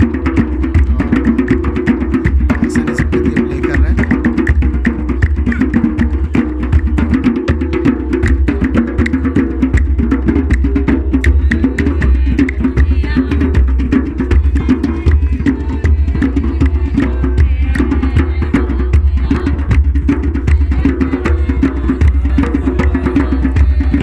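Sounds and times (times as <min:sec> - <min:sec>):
voices singing: 0:00.0 - 0:04.2, 0:10.8 - 0:24.0
hand drums: 0:00.0 - 0:24.0.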